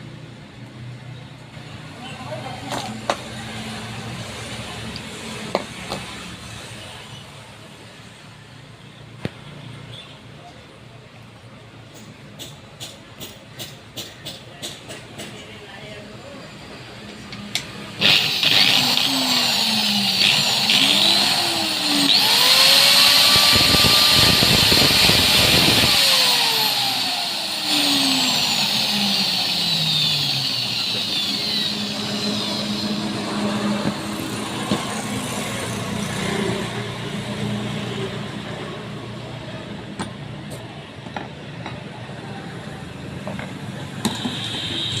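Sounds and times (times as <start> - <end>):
angle grinder motor whine: 17.9 - 38.5, 43.3 - 45.0.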